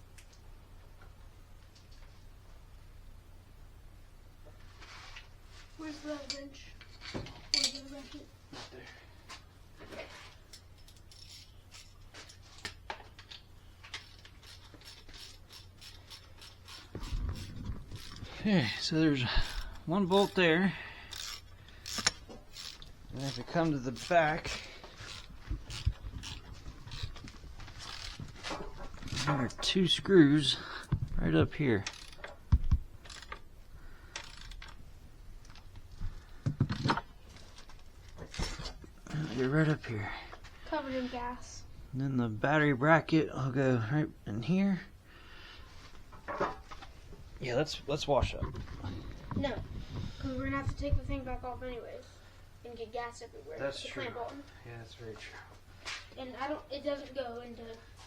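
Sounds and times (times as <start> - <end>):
low steady hum: 0.0 - 56.7
wrench and metal parts clicking: 7.5 - 7.9, 10.5 - 18.3, 19.4 - 20.4, 21.1 - 29.6, 31.8 - 32.4, 33.0 - 33.4, 34.1 - 34.8.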